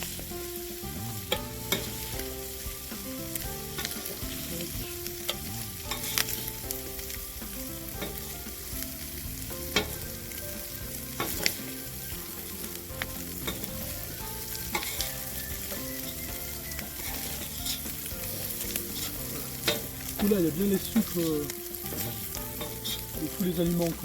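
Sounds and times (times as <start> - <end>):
oil sizzling in a pan: 0.0 - 24.0
utensil knocking against pan: 11.0 - 21.2.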